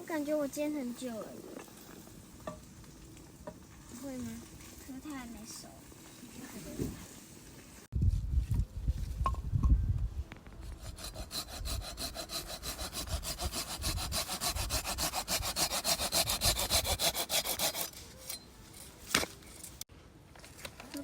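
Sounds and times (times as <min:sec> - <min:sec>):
hand saw cutting wood: 0:10.7 - 0:18.3.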